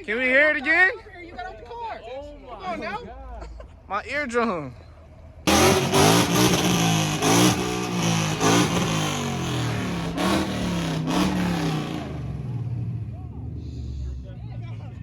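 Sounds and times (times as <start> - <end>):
car engine revving through loud exhaust: 5.5 - 13.8.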